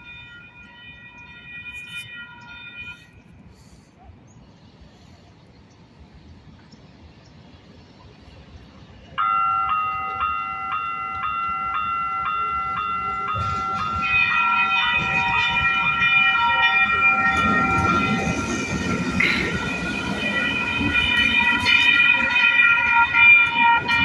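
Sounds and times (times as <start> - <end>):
electronic crossing warning bells: 0.0 - 3.8, 9.2 - 24.0
train rumble approaching: 2.3 - 24.0.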